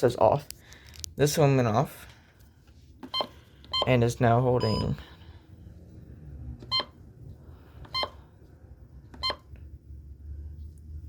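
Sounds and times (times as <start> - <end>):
weather radio beeping: 3.2 - 5.1.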